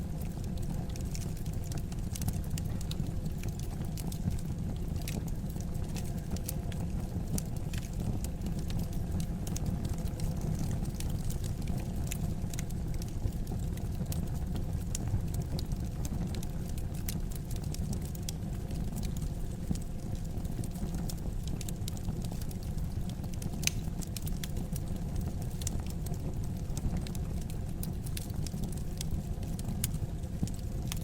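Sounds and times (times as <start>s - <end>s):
low fire rumble: 0.0s - 31.0s
wood fire crackling: 0.0s - 31.0s
sharp pops and snaps: 23.6s - 24.3s.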